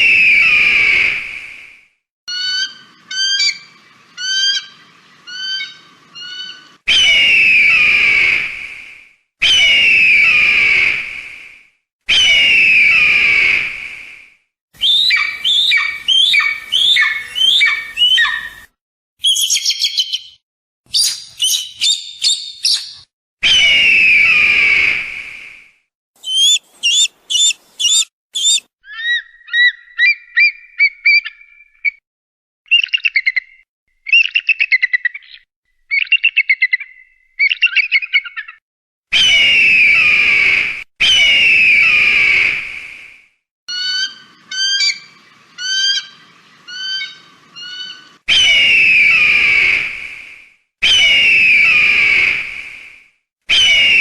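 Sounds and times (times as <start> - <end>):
hawk chattering calls: 26.2 - 29.2.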